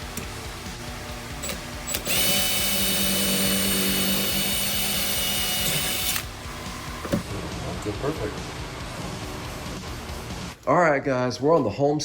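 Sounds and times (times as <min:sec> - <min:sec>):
power drill drilling metal: 0:01.4 - 0:06.3.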